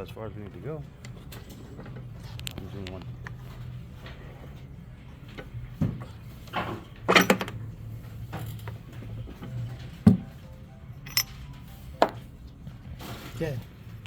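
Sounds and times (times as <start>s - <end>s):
grinder parts knocking and clinking: 11.0s - 12.2s.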